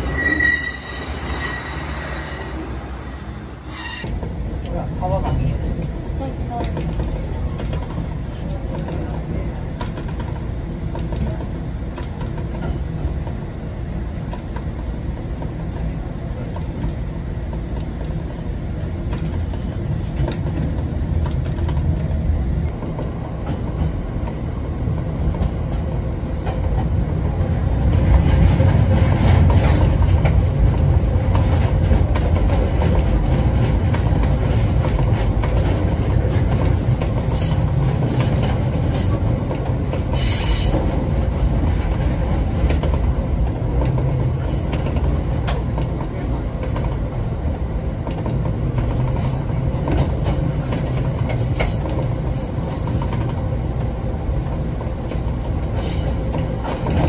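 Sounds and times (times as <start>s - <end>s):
high wheel squeals: 0.0s - 2.8s, 3.6s - 4.1s, 18.2s - 19.8s
train wheels rumbling on rail: 0.0s - 57.0s.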